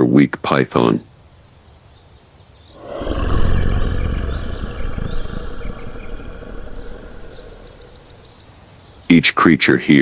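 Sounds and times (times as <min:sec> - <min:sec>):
big cat roaring: 0:02.8 - 0:08.4.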